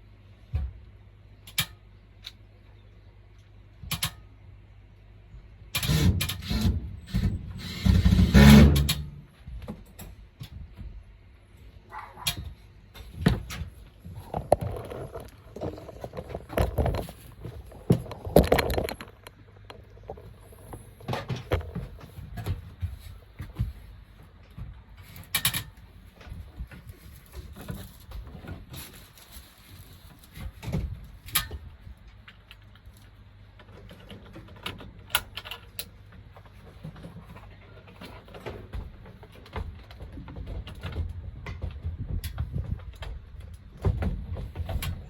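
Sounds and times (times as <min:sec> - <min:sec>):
scraping and clattering: 0:14.0 - 0:23.2.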